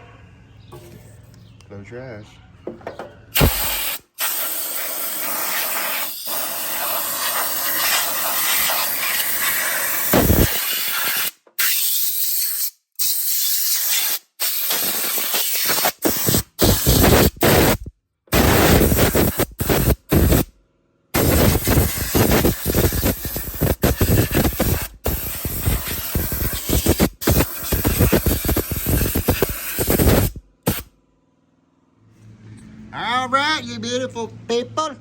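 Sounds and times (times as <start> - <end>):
compressed air blow gun hissing: 3.4 - 20.5, 21.2 - 30.8.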